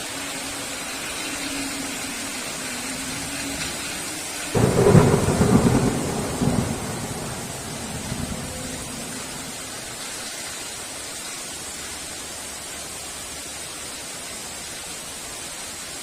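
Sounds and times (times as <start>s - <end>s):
heavy rain falling: 0.0s - 16.0s
thunder rumble: 1.6s - 10.1s.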